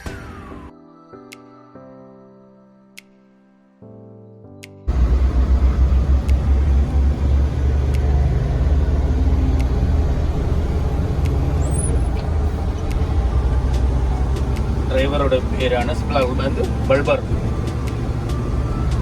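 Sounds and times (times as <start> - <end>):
truck engine and road rumble: 4.9 - 19.0
faint clicks: 9.5 - 9.8.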